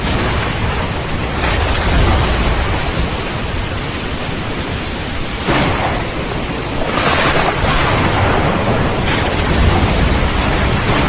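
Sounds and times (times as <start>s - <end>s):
heavy rain: 0.0s - 11.0s
thunder rumbling: 0.0s - 11.0s.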